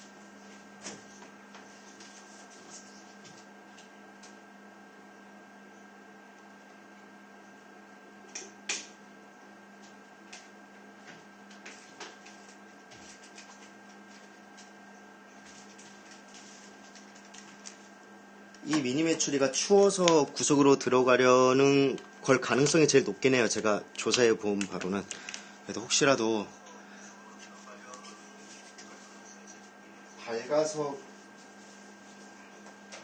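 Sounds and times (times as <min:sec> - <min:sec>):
incubator electrical hum: 0:00.0 - 0:33.0.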